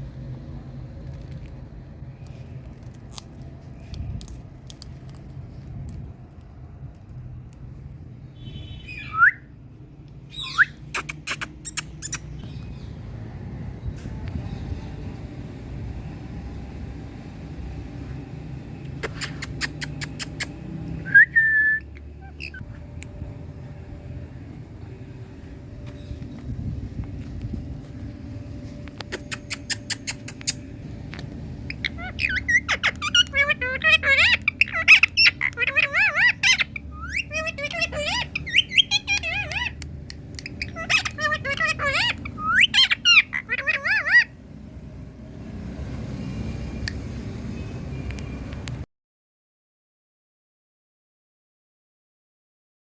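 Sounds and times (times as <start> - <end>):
sharp clicking chirps: 18.8 - 21.0, 28.9 - 33.3, 38.3 - 41.2
parrot calls: 22.2 - 22.6, 31.6 - 44.4
parrot clicking: 38.4 - 41.2.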